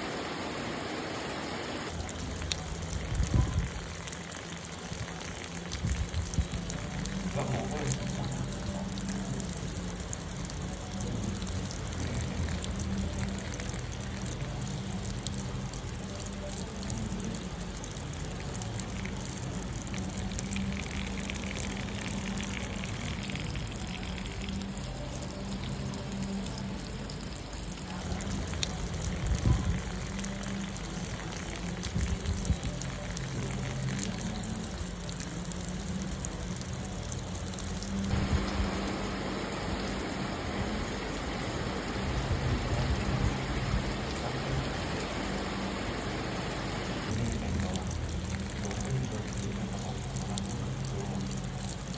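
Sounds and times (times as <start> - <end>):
steady rain: 0.0 - 51.9
water trickling and pouring: 0.4 - 51.9
low hum: 18.6 - 51.9.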